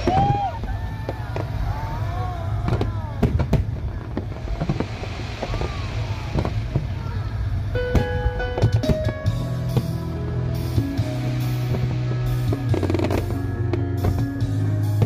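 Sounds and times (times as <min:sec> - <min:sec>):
crowd chatter: 0:00.0 - 0:07.9
fireworks cracking: 0:00.0 - 0:15.0
low rumble: 0:00.0 - 0:15.0.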